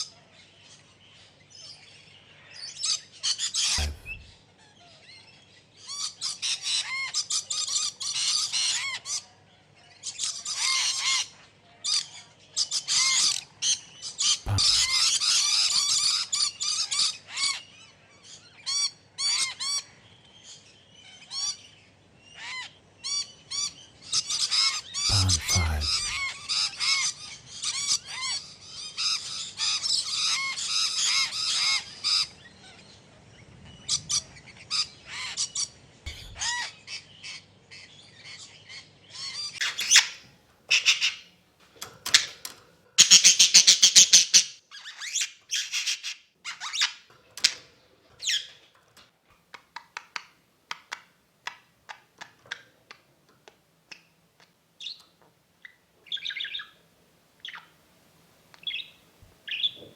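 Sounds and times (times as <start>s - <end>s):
parrots chattering: 3.6s - 4.4s, 14.5s - 15.2s, 25.1s - 26.4s, 36.1s - 36.6s, 43.0s - 47.0s
parrot chirps: 14.5s - 15.1s
parrot squawks: 14.5s - 15.1s.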